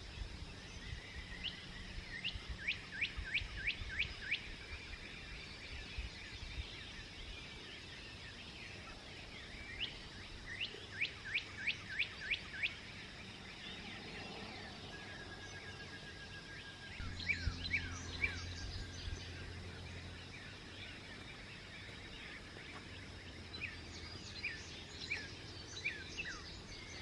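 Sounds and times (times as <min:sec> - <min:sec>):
songbirds twittering: 0:00.0 - 0:27.0
bird singing down-slurred notes: 0:07.2 - 0:27.0.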